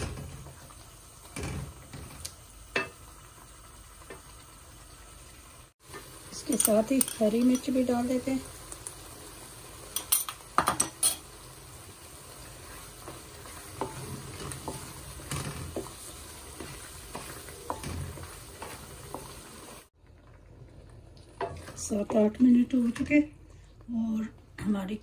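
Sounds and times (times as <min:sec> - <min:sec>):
food sizzling in a wok: 0:00.0 - 0:20.0.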